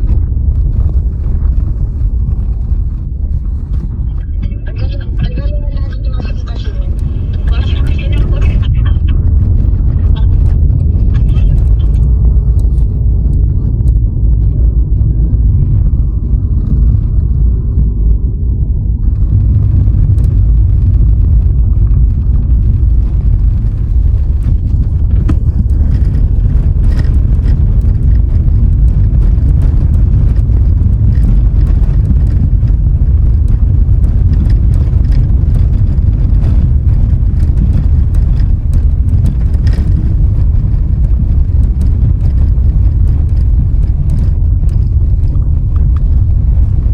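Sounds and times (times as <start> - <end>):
road and wind rumble: 0.0 - 46.9
faint ticks and rattles: 19.1 - 46.9.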